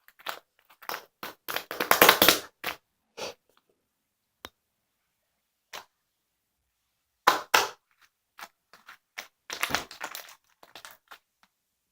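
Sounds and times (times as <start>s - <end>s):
sharp clicks and cracks: 0.0s - 2.8s.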